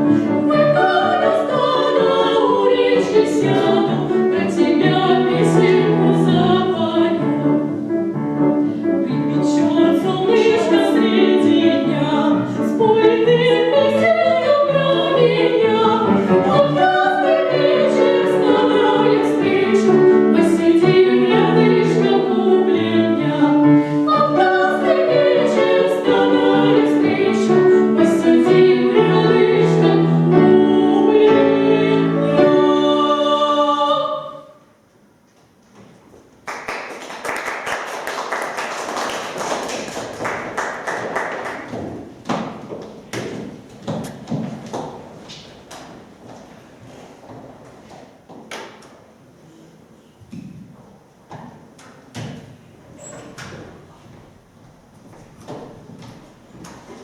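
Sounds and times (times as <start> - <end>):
opera-style singing with accompaniment: 0.0 - 34.8.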